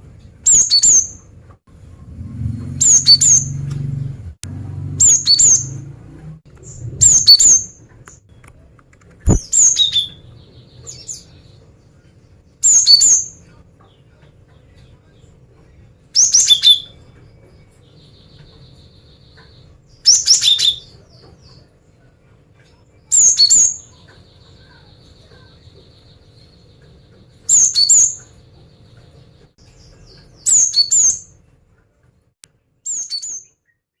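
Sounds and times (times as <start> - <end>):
bird chip calls: 2.8 - 3.6, 5.0 - 5.8, 23.2 - 29.1.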